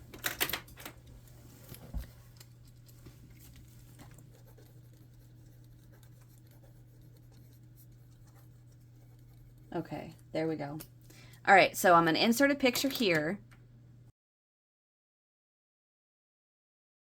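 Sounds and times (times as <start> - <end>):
clicks and rustling of objects: 0.0 - 4.9
faint low hum: 0.0 - 14.1.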